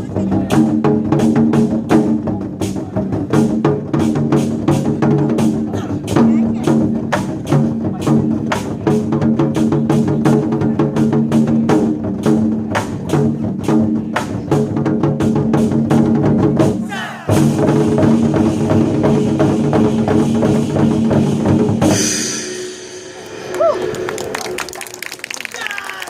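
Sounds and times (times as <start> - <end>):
war drums in driving rhythm: 0.0 - 23.8
bright cymbal crash: 21.9 - 24.4.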